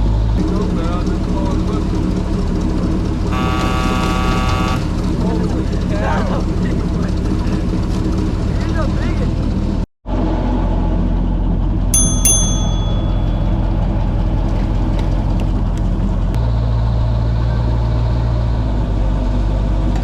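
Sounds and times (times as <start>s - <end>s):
airboat engine humming: 3.1s - 5.0s, 12.0s - 16.2s
sharp metallic clinks: 12.0s - 13.8s.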